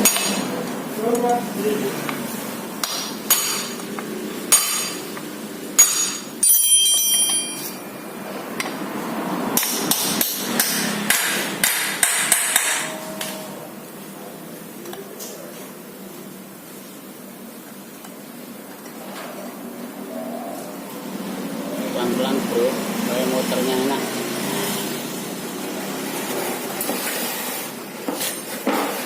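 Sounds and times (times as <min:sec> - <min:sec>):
hammer tapping on metal: 0:09.6 - 0:13.4.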